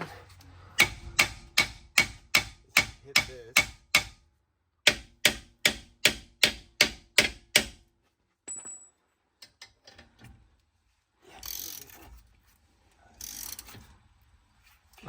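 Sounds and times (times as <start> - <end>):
hammer striking steel: 0.8 - 4.2, 4.8 - 7.8
rasping ratchety noise: 11.4 - 12.0, 13.2 - 13.7.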